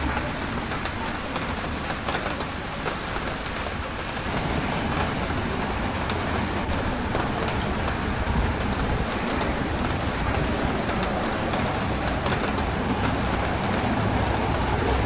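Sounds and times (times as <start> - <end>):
steady rain: 0.0 - 15.0
street traffic rumble: 0.0 - 15.0.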